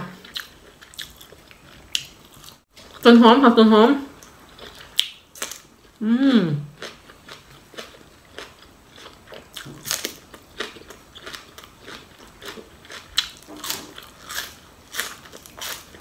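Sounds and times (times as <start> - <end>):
person crunching raw onion stalks: 6.8 - 16.0.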